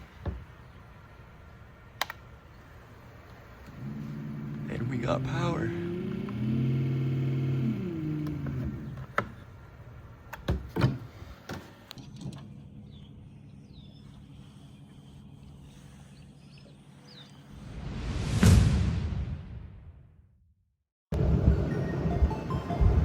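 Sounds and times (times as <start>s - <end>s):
faint steady hum: 0.0s - 17.5s
electric motor whirring: 3.6s - 9.4s.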